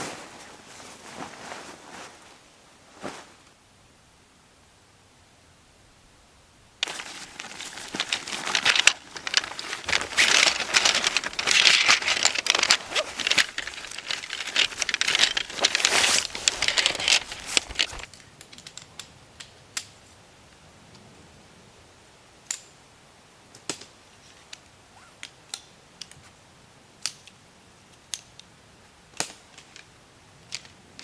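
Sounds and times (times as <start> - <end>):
material crinkling and rustling: 0.0 - 3.5, 6.8 - 18.1.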